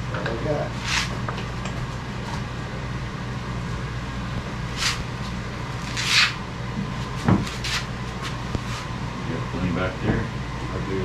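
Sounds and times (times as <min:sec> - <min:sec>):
low workshop hum: 0:00.0 - 0:11.0
wood scraping: 0:04.8 - 0:06.4, 0:07.0 - 0:08.9
wooden piece thump: 0:07.2 - 0:07.5.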